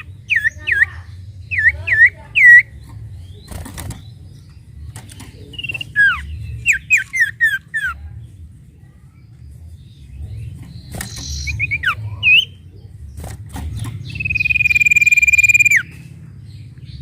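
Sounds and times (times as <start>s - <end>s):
bird whistling: 5.5s - 8.0s, 11.0s - 12.6s, 14.1s - 16.0s.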